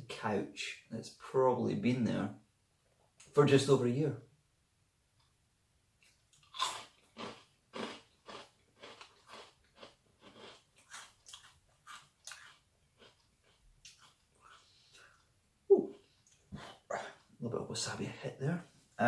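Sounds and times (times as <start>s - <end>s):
person chewing crunchy cracker: 6.0s - 17.3s.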